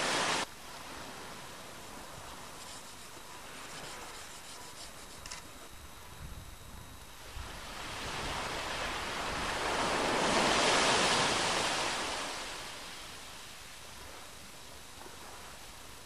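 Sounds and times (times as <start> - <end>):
wave washing in: 0.0 - 2.4, 7.5 - 13.3.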